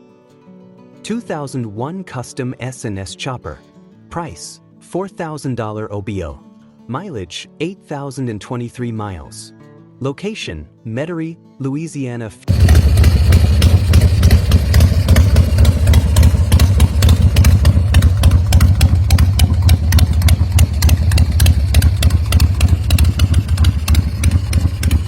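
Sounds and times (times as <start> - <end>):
motorcycle engine idling: 12.5 - 25.0.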